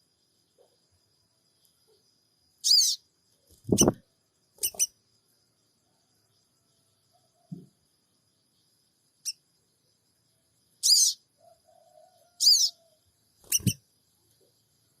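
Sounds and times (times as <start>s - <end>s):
bird chirping: 1.6s - 5.0s, 7.1s - 11.3s, 12.3s - 15.0s.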